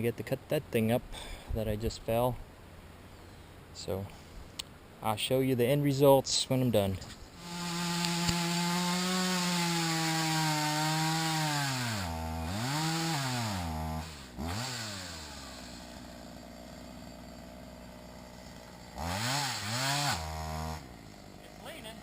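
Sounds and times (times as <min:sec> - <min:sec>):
chainsaw revving and idling: 0:07.4 - 0:22.0.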